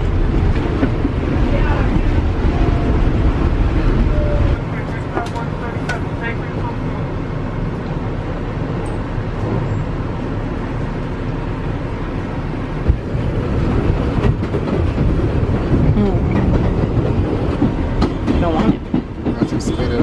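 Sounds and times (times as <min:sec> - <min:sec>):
subway train wheels rumbling: 0:00.0 - 0:20.0.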